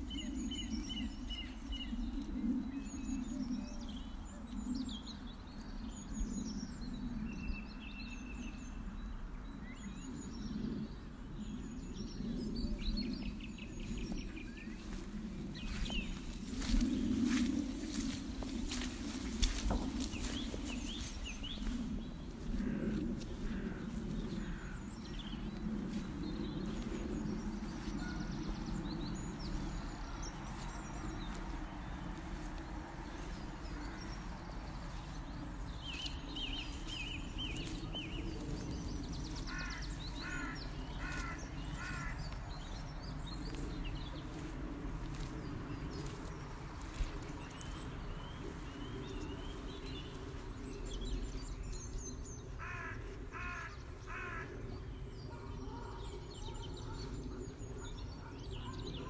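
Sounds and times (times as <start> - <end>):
steady low rumble: 0.0 - 59.0
wild birds chirping: 0.0 - 59.0
repeated bird calls: 11.4 - 44.5, 46.9 - 59.0.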